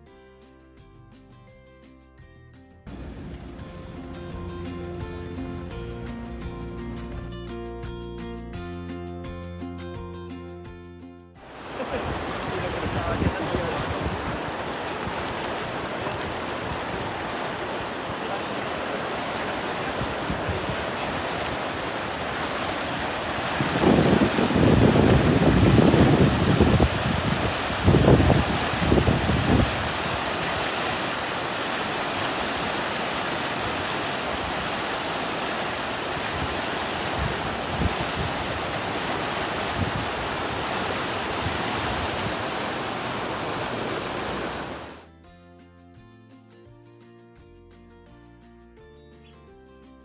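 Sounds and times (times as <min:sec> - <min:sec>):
flowing water: 0:11.4 - 0:45.0
wind buffeting microphone: 0:11.6 - 0:45.0.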